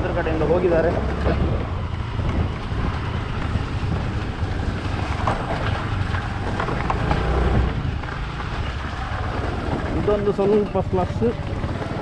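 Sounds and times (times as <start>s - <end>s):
motorcycle engine rumble: 0.0s - 12.0s
wind buffeting microphone: 1.0s - 12.0s.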